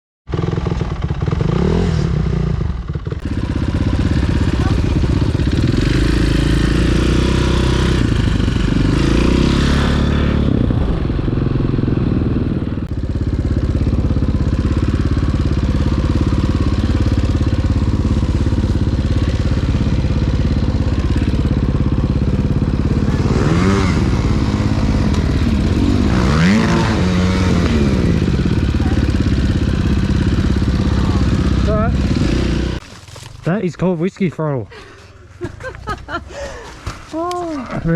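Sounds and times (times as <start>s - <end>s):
dirt bike engine revving: 0.3s - 32.8s.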